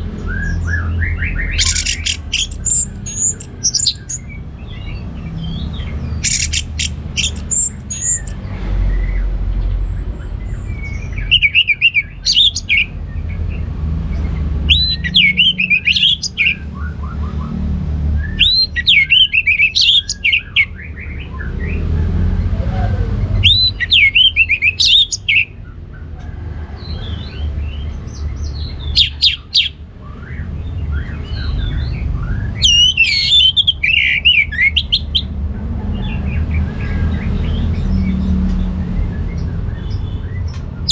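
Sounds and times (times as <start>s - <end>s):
bird singing whistled notes: 0.2s - 8.4s, 18.2s - 21.8s, 28.9s - 35.1s.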